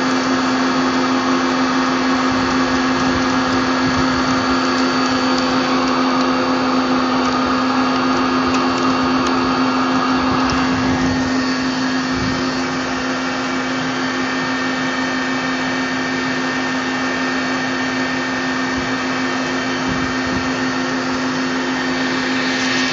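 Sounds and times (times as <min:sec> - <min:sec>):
lathe machine hum: 0:00.0 - 0:22.9
bright hissing: 0:21.1 - 0:22.9.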